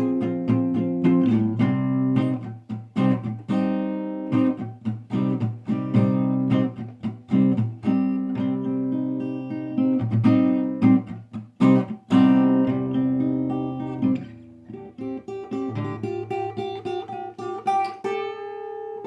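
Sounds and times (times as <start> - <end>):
acoustic guitar: 0.0 - 19.0.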